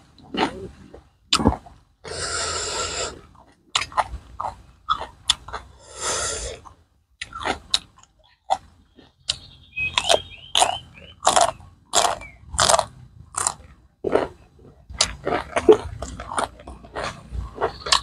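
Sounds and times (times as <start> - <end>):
wet chewing and crunching: 0.0 - 18.0
mouth clicks: 8.5 - 12.9.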